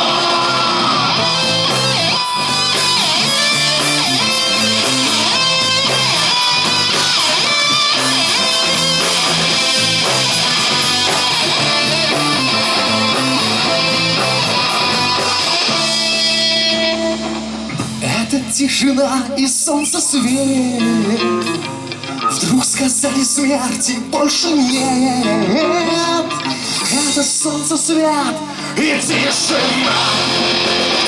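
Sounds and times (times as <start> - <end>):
lead guitar line bending: 0.0 - 18.5, 29.1 - 31.0
steady drum beat: 0.0 - 18.5, 29.1 - 31.0
guitars strumming: 0.0 - 18.6, 29.0 - 31.0
bass: 0.0 - 31.0.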